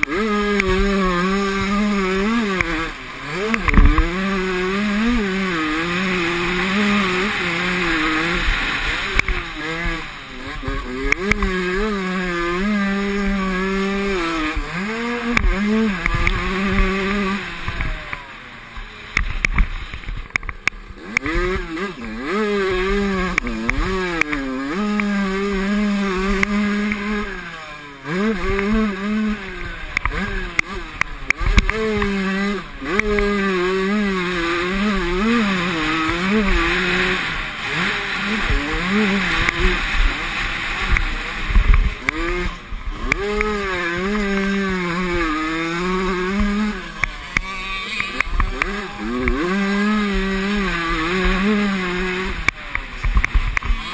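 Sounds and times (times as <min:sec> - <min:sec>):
motorcycle engines revving: 0:00.0 - 0:53.9.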